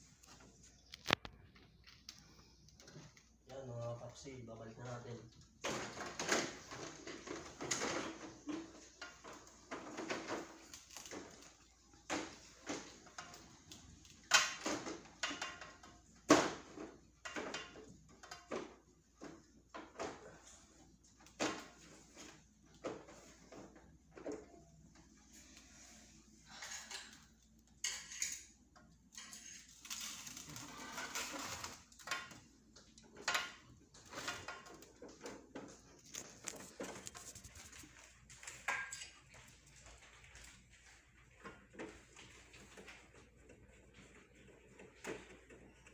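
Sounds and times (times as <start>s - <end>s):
plastic parts clicking and knocking: 0.2s - 4.2s, 4.8s - 25.2s, 26.5s - 45.9s.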